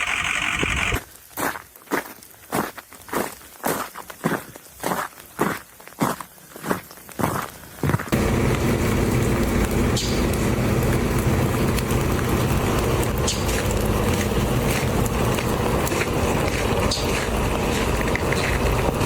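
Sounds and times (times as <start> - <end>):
vehicle engine and road noise: 0.0 - 1.0, 8.1 - 19.0
sharp crackles: 0.0 - 1.3, 8.1 - 19.0.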